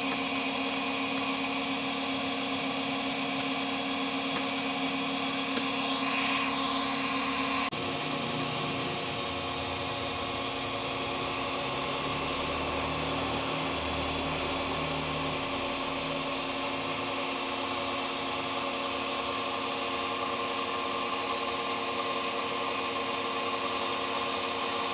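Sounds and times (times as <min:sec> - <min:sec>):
machine motor humming: 0:00.0 - 0:15.5.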